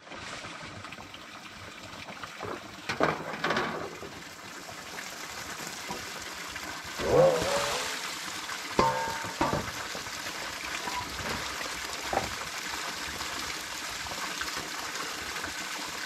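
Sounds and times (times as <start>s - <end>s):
running water rushing: 0.0s - 16.0s
water splashing: 6.9s - 12.8s.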